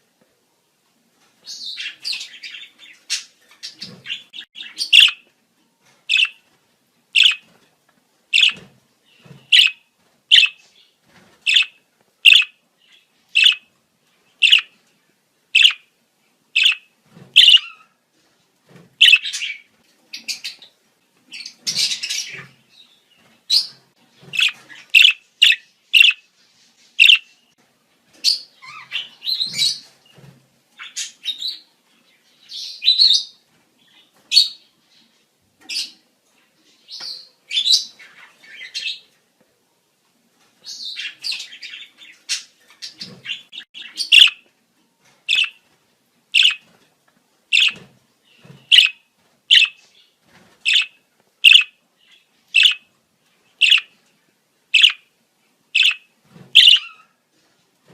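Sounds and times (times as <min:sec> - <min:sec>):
budgerigars chirping: 0:01.5 - 0:05.2, 0:06.1 - 0:06.4, 0:07.2 - 0:07.5, 0:08.3 - 0:08.6, 0:09.2 - 0:10.6, 0:11.5 - 0:13.7, 0:14.4 - 0:14.7, 0:15.6 - 0:15.8, 0:16.6 - 0:17.9, 0:19.0 - 0:20.7, 0:23.5 - 0:26.2, 0:27.0 - 0:27.3, 0:40.7 - 0:44.4, 0:45.3 - 0:45.6, 0:46.4 - 0:46.6, 0:47.5 - 0:47.8, 0:48.4 - 0:49.8, 0:50.7 - 0:52.9, 0:53.6 - 0:54.0, 0:54.8 - 0:55.0, 0:55.8 - 0:57.1
budgerigars chattering: 0:01.8 - 0:05.2, 0:06.1 - 0:06.4, 0:07.2 - 0:07.4, 0:08.4 - 0:08.6, 0:09.5 - 0:10.6, 0:11.5 - 0:12.5, 0:13.4 - 0:13.6, 0:14.4 - 0:14.7, 0:15.6 - 0:15.8, 0:16.6 - 0:16.8, 0:17.4 - 0:17.7, 0:19.0 - 0:19.6, 0:24.3 - 0:26.2, 0:27.0 - 0:27.2, 0:43.2 - 0:44.4, 0:45.3 - 0:45.6, 0:46.4 - 0:46.6, 0:47.5 - 0:47.8, 0:48.7 - 0:49.8, 0:50.7 - 0:51.8, 0:52.6 - 0:52.8, 0:53.6 - 0:53.9, 0:54.8 - 0:55.0, 0:55.8 - 0:56.0, 0:56.6 - 0:57.0.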